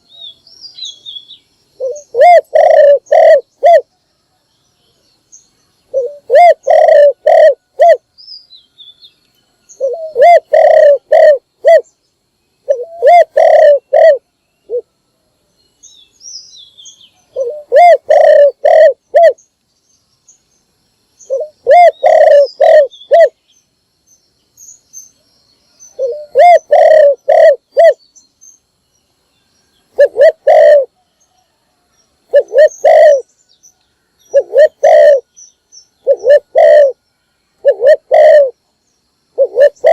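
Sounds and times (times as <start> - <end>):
dove cooing: 1.8 - 4.0, 5.9 - 8.0, 9.8 - 11.9, 12.6 - 14.8, 17.3 - 19.4, 21.3 - 23.4, 26.0 - 28.0, 29.9 - 31.6, 32.3 - 33.3, 34.3 - 35.3, 36.0 - 37.0, 37.6 - 38.6, 39.3 - 39.9
small birds chirping: 15.5 - 39.9.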